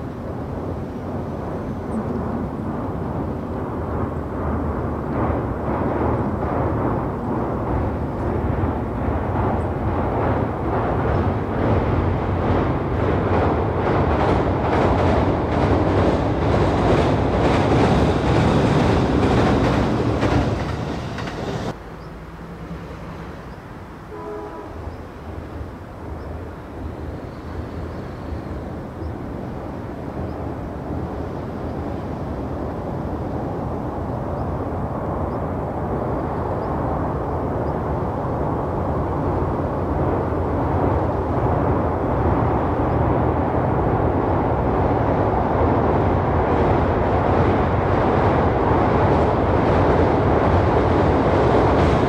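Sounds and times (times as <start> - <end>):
train rumble: 0.0 - 52.0
train wheels clattering over joints: 4.6 - 21.8.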